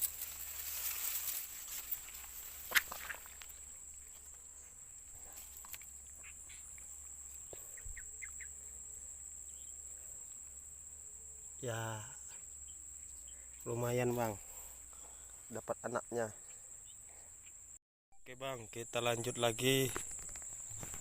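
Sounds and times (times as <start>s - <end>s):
footsteps through grass: 0.0s - 7.5s, 19.8s - 21.0s
faint chirps: 0.0s - 17.8s
high insect drone: 0.0s - 21.0s.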